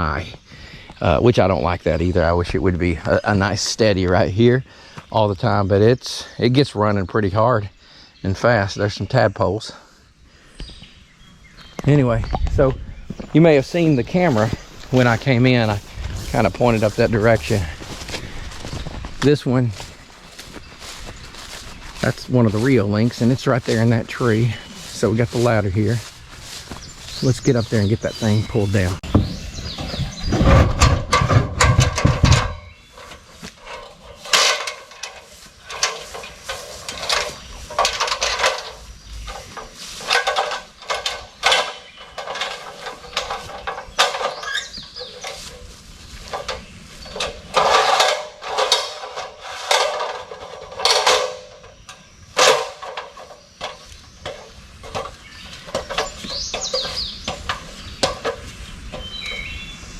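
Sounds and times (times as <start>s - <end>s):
knocks clicks and scrapes of handling: 11.7s - 59.6s.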